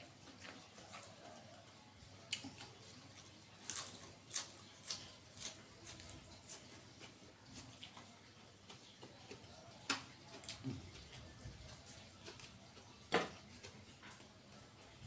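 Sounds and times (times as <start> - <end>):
chewing crunchy leafy greens: 0.0 - 15.0.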